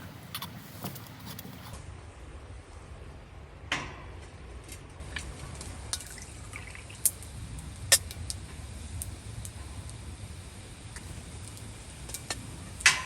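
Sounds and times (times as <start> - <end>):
low steady rumble: 5.0 - 13.0.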